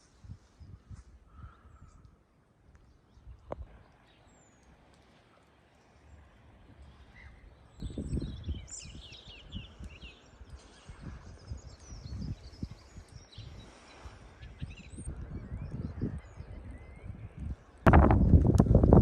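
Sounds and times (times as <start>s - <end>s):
wind buffeting microphone: 0.0s - 2.2s, 6.5s - 19.0s
small birds chirping: 0.3s - 18.4s.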